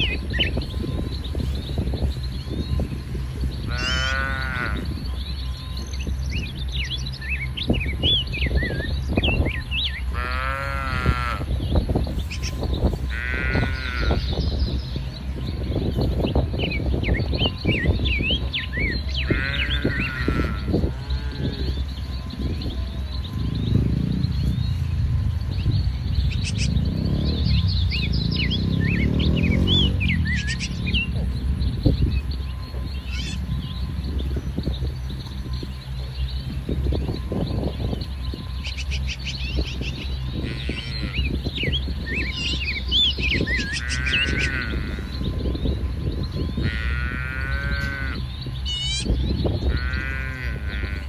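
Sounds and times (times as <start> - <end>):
birds chirping: 0.0 - 51.0
steady low rumble: 0.0 - 51.0
livestock calls: 3.6 - 5.2, 10.0 - 15.0, 17.0 - 24.9, 26.2 - 31.2, 32.0 - 33.6, 37.6 - 51.0.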